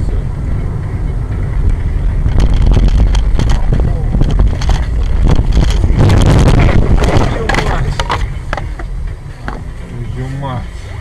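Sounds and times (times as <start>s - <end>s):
road and engine rumble: 0.0s - 11.0s
knocks and rattles: 2.2s - 9.7s.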